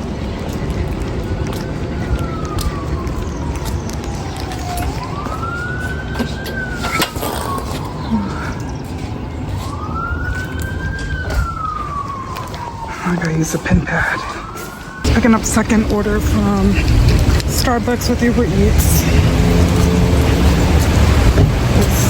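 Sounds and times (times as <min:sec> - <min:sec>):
emergency vehicle siren wailing: 0:00.0 - 0:22.0
low rumble: 0:15.0 - 0:22.0.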